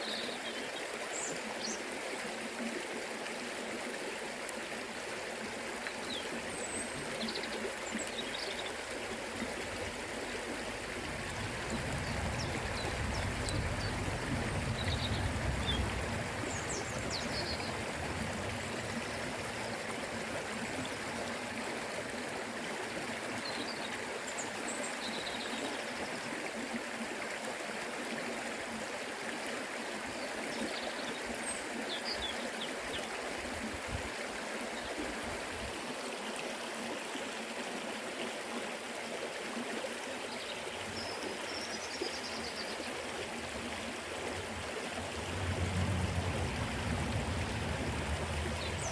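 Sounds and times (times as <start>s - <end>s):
water rushing over stones: 0.1s - 48.9s.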